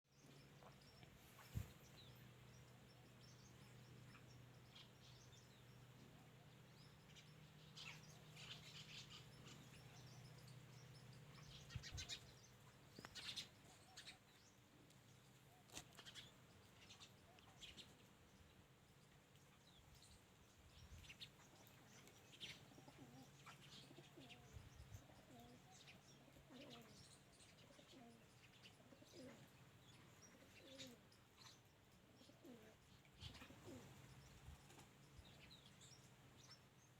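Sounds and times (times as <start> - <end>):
faint low hum: 0.1 - 36.9
small birds chirping: 0.1 - 36.9
doves cooing: 21.6 - 31.1, 32.0 - 34.8.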